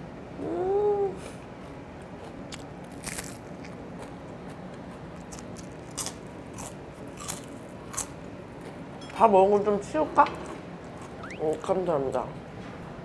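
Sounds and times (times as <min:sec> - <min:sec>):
person chewing: 0:01.2 - 0:08.8
crisp crunches of chewing: 0:02.1 - 0:08.2.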